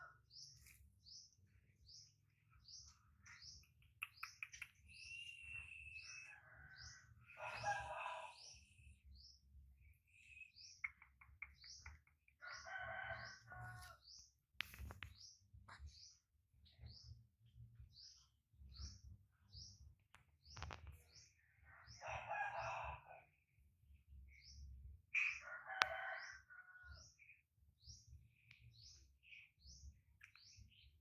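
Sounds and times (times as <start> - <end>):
small bird chirping: 0.3 - 22.5
sharp clicks: 3.7 - 5.0.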